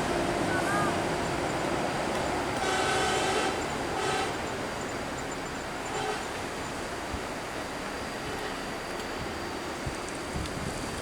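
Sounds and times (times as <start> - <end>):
vehicle and road noise: 0.0 - 11.0
vehicle horn blasts: 2.6 - 4.4, 5.9 - 6.3.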